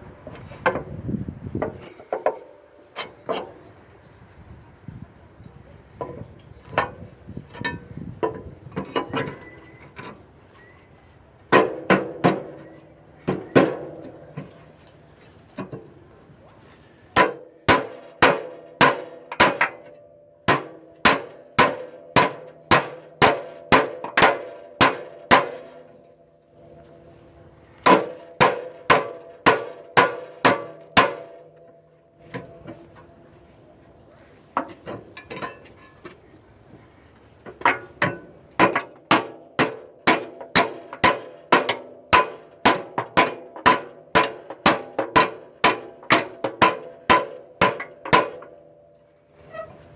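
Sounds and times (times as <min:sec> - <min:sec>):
hammer striking steel: 0:17.2 - 0:26.0, 0:27.8 - 0:31.7, 0:38.0 - 0:48.6.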